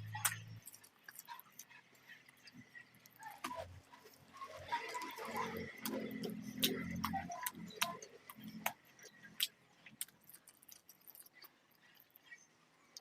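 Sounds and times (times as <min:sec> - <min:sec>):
wet mouth clicks and lip smacks: 0:05.7 - 0:12.2.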